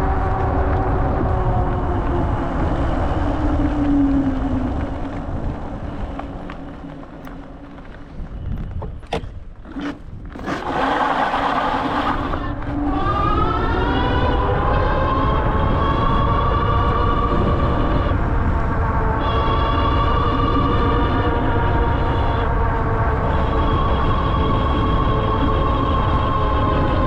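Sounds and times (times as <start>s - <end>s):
wind on microphone: 0.0s - 27.0s
electric motor whining: 9.6s - 14.5s.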